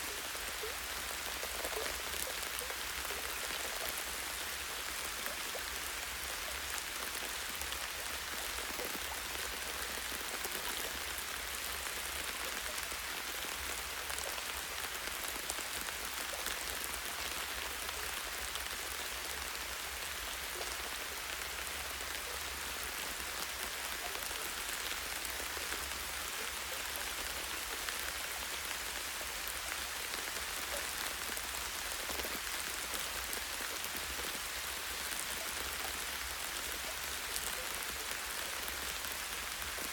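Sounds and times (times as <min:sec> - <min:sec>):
light rain on leaves: 0:00.0 - 0:39.9.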